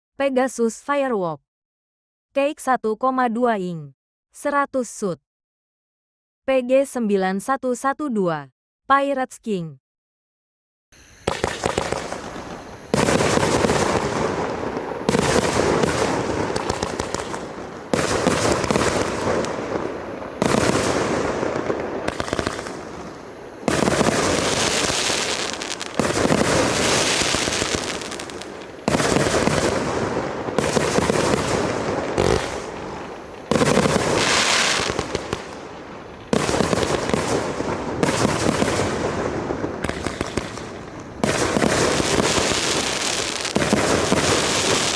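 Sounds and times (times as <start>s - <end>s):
firework bursts with crackling: 11.0s - 44.9s
firework launch thumps: 11.2s - 19.8s.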